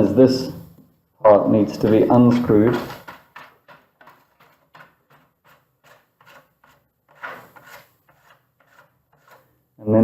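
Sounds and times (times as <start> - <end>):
screw fitting rubbing and scraping: 1.7 - 9.6.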